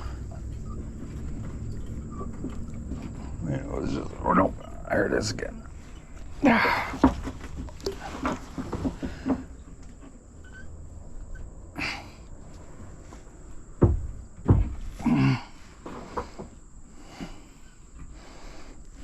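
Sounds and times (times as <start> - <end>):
heavy thumps against hull: 13.8 - 15.0.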